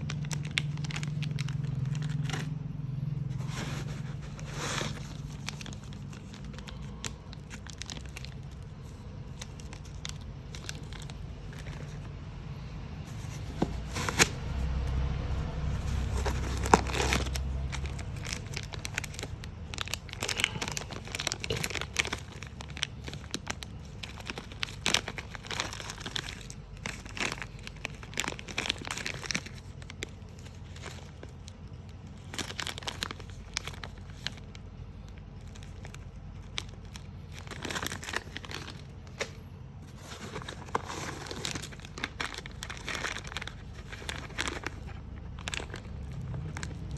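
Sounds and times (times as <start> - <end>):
packaging crinkling and tearing: 0.0 - 1.8, 15.7 - 31.3, 40.0 - 46.9.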